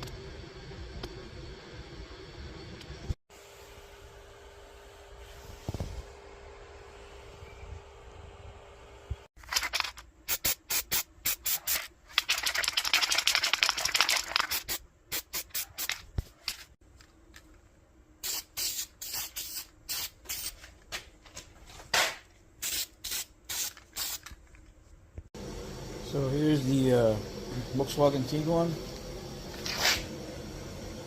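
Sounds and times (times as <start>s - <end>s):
spray paint can hissing: 9.5s - 16.6s, 18.2s - 20.6s, 22.6s - 24.3s, 29.5s - 30.1s.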